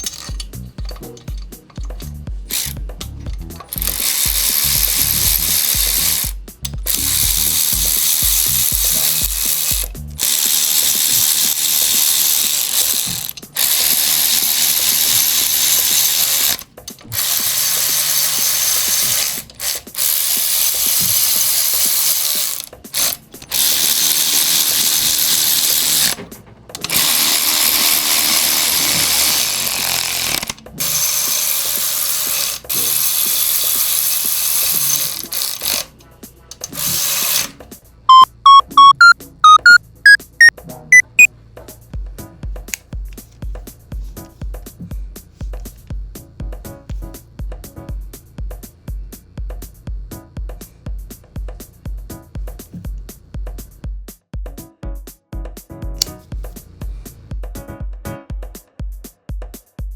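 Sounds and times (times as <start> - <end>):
ratchet wrench clicking: 0.0 - 26.2, 26.8 - 41.3, 56.0 - 56.2.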